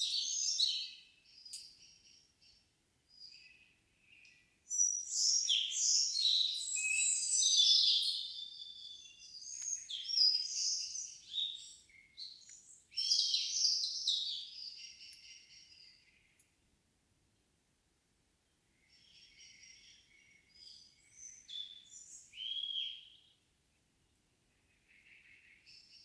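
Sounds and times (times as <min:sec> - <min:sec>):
songbird warbling: 0:04.7 - 0:16.4.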